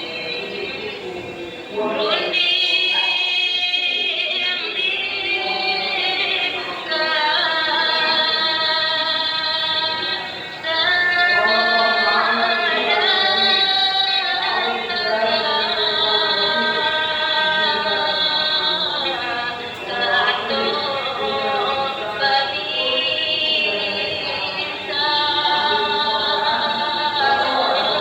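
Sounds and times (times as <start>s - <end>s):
singing with wavering held notes: 0.0s - 28.0s.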